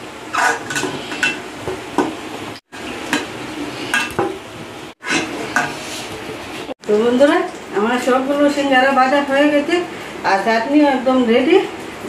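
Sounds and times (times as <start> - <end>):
metal spoon scraping and clinking: 0.4 - 1.4, 5.0 - 5.8.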